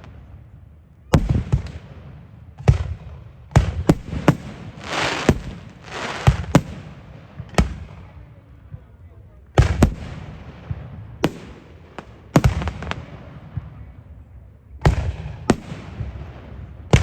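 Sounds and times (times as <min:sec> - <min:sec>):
fireworks bangs: 0:01.2 - 0:08.8, 0:09.5 - 0:14.0, 0:14.8 - 0:17.0
fireworks hissing: 0:04.8 - 0:06.7.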